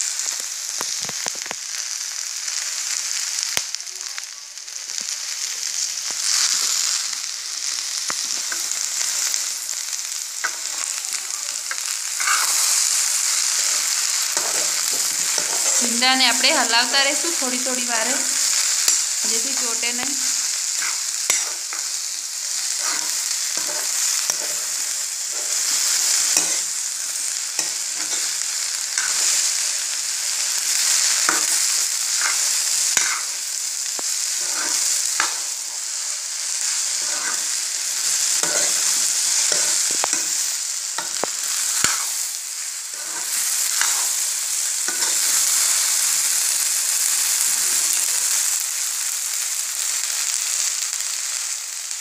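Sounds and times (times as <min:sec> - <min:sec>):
okra sizzling in oil: 0:00.0 - 0:52.0
utensil scraping a pan: 0:12.2 - 0:16.4, 0:18.9 - 0:22.0, 0:22.6 - 0:26.7, 0:31.0 - 0:33.4, 0:34.2 - 0:35.9, 0:36.6 - 0:40.4, 0:41.0 - 0:42.2, 0:42.9 - 0:44.3, 0:44.9 - 0:45.5.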